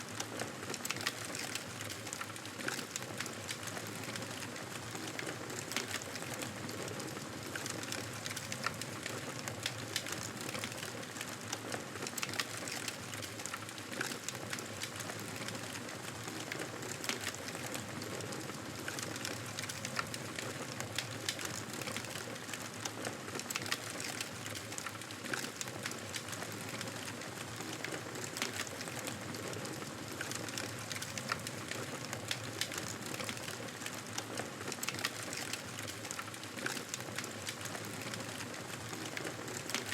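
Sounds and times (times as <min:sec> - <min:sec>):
wood crackling and popping: 0:00.0 - 0:39.9.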